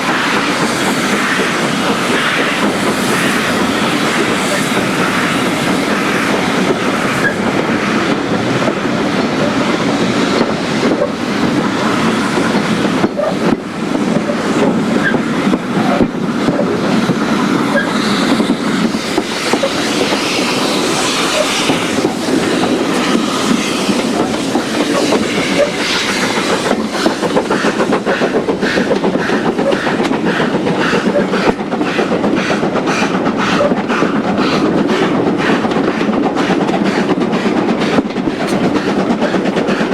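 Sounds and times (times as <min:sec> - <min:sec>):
train wheels clickety-clack on rails: 0:00.0 - 0:39.9.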